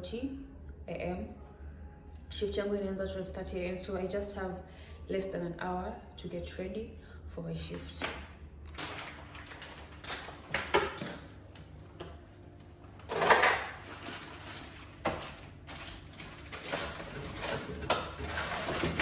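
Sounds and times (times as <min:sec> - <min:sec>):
household items knocking and clattering: 0:08.8 - 0:11.3, 0:13.0 - 0:19.0.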